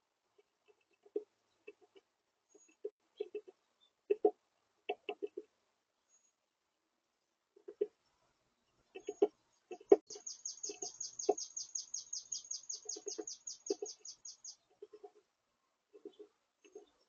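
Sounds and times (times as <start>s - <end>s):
songbird trilling: 9.9s - 14.6s.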